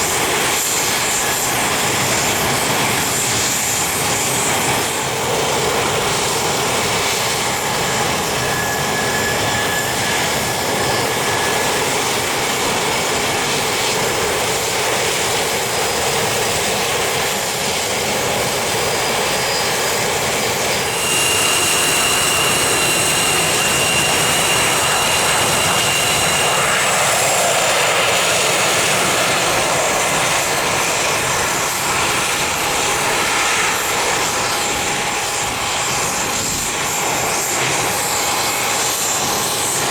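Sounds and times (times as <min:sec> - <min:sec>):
jet engines roaring: 0:00.0 - 0:39.9
high whining tones: 0:06.2 - 0:12.3, 0:19.0 - 0:34.7.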